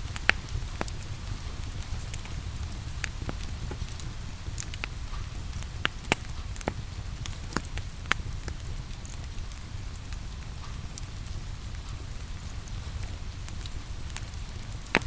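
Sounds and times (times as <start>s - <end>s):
steady rain: 0.0s - 15.0s
wood fire crackling: 0.0s - 15.0s.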